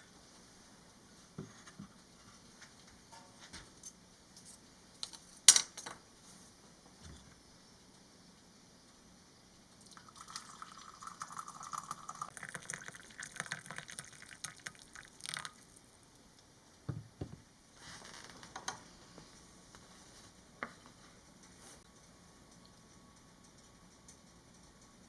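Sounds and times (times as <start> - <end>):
liquid pouring into a cup: 9.8 - 15.8
dull knocks: 16.9 - 17.4.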